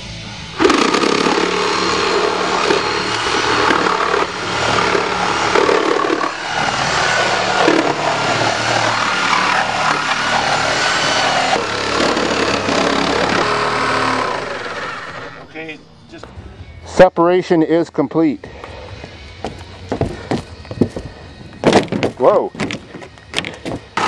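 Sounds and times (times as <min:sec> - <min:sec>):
reciprocating saw cutting metal: 0:00.5 - 0:15.8.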